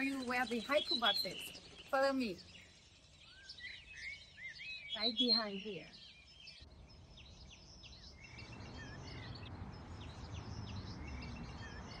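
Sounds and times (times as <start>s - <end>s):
wild birds chirping: 0.0s - 12.0s.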